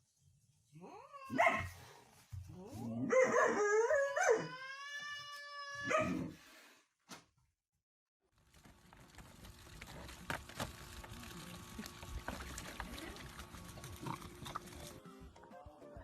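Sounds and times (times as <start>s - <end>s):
dog howling: 2.9s - 4.9s, 5.7s - 6.3s.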